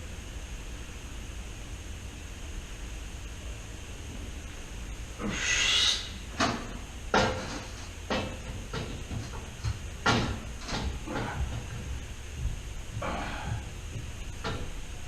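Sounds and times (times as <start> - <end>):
metal clunks and knocks: 6.4 - 14.8.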